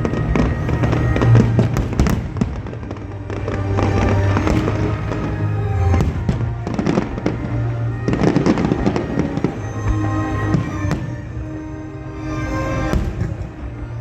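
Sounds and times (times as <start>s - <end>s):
background music: 0.0s - 14.0s
fireworks bangs and crackles: 0.1s - 5.2s, 12.9s - 13.4s.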